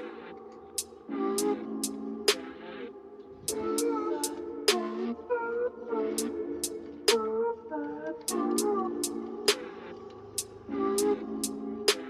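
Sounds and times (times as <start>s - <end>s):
synth chords: 0.0s - 12.0s
hi-hat ticks: 0.8s - 2.5s, 6.2s - 7.2s, 8.3s - 9.7s, 10.4s - 12.0s.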